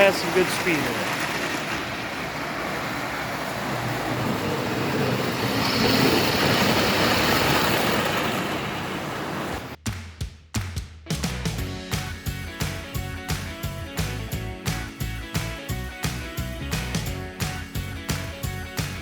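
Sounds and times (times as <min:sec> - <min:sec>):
model locomotive running on track: 0:00.0 - 0:09.4.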